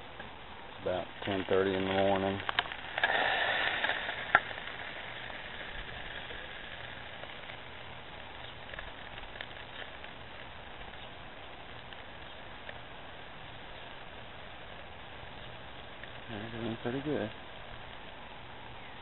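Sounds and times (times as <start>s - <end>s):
food sizzling in oil: 2.4s - 10.7s.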